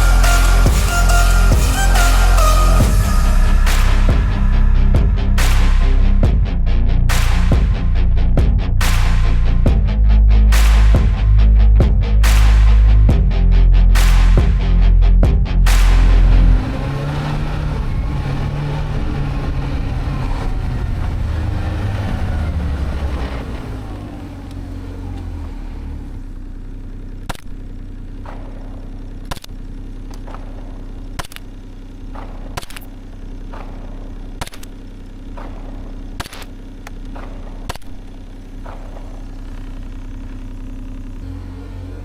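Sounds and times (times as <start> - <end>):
music: 0.0 - 16.6
engine drone: 0.0 - 42.0
sharp clicks: 27.3 - 27.6, 29.2 - 30.6, 31.2 - 31.5, 32.2 - 32.9, 34.4 - 34.8, 35.4 - 38.0.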